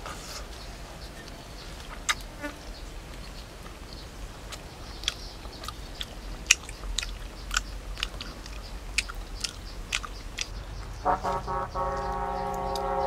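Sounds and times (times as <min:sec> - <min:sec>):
person chewing with open mouth: 0:04.5 - 0:10.7
mouth smacks and clicks: 0:04.5 - 0:12.9.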